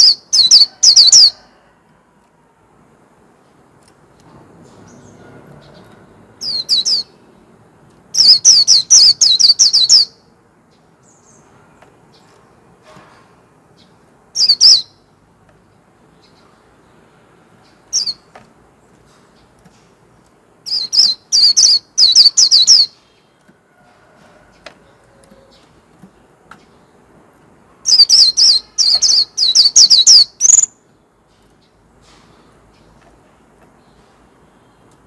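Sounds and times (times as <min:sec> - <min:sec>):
bird chirping: 0:00.0 - 0:01.4, 0:04.7 - 0:07.4, 0:08.1 - 0:12.4, 0:13.7 - 0:15.1, 0:17.6 - 0:19.6, 0:20.6 - 0:23.4, 0:27.8 - 0:30.9.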